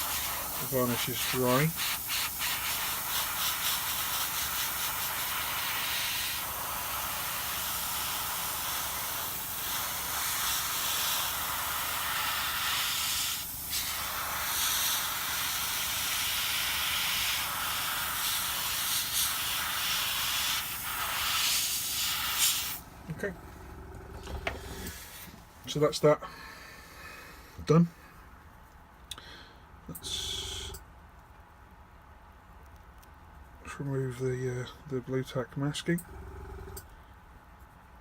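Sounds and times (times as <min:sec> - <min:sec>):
airbrush hissing air: 0:00.0 - 0:22.9, 0:24.3 - 0:25.4.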